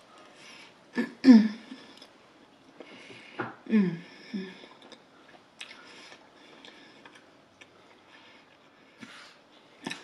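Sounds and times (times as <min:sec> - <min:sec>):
soft chewing: 0:01.6 - 0:03.4, 0:04.4 - 0:10.0
wet mouth clicks: 0:04.7 - 0:05.8.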